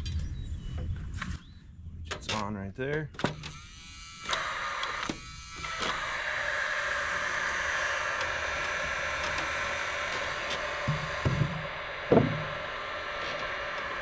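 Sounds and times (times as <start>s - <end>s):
power drill motor running: 3.2s - 14.0s.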